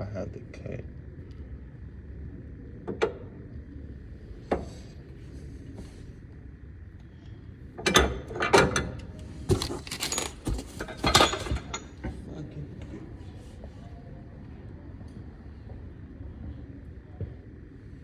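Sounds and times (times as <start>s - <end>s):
metal tools clinking: 9.5s - 12.0s.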